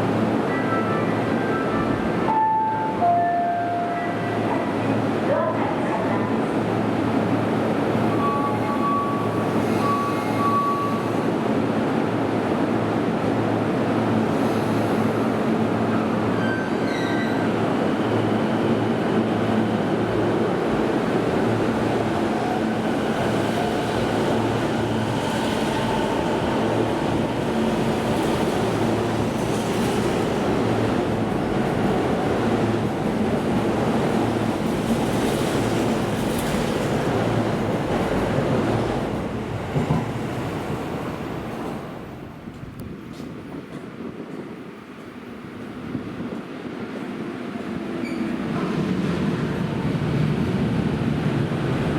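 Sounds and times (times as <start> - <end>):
train rumbling past: 0.0 - 51.9
short beeps: 8.1 - 11.1.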